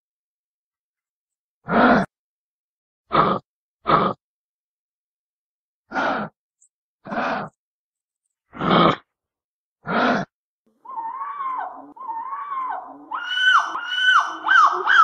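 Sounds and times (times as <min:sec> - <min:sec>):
animal hooting calls: 0:10.8 - 0:15.0.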